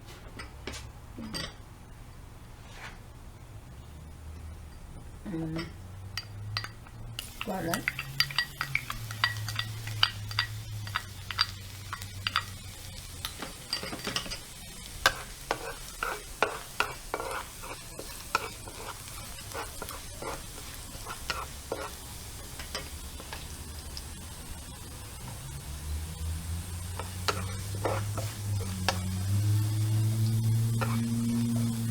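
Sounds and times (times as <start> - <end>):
garlic sizzling in oil: 6.6 - 31.9
spatula scraping a pan: 13.7 - 23.6, 26.9 - 31.9.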